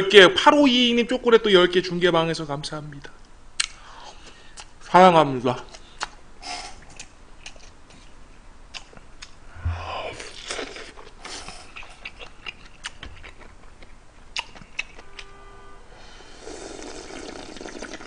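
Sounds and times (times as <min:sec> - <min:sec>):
chewing and mouth sounds: 0:08.7 - 0:09.4, 0:10.3 - 0:15.0.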